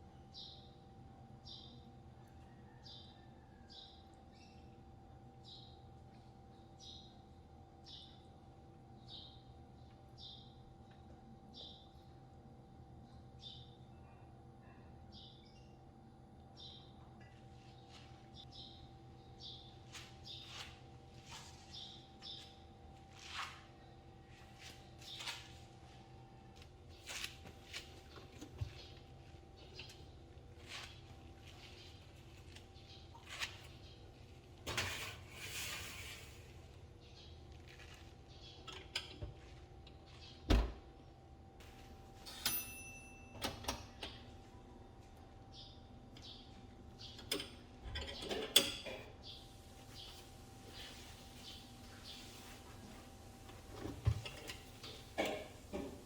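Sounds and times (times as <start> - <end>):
faint steady hum: 0.0 - 56.0
faint bird chirping: 1.4 - 8.3.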